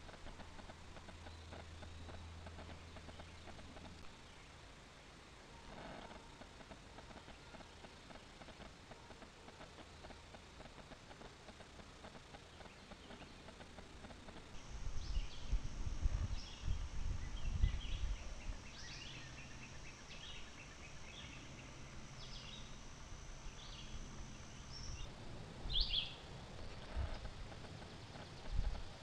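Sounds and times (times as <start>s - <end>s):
steady high whine: 0.0s - 29.0s
birds chirping: 7.0s - 29.0s.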